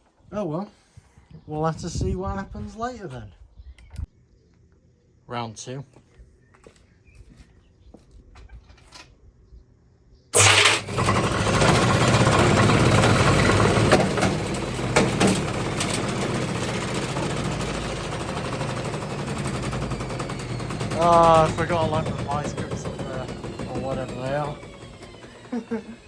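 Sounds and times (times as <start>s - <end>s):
drum rattling clatter: 10.4s - 25.6s
washing machine running: 10.4s - 26.0s.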